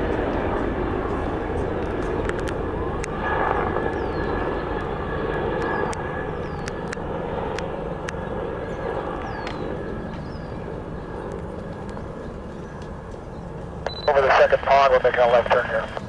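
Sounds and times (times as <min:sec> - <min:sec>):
helicopter turbine and rotor noise: 0:00.0 - 0:16.0
sharp clicks: 0:13.8 - 0:14.2.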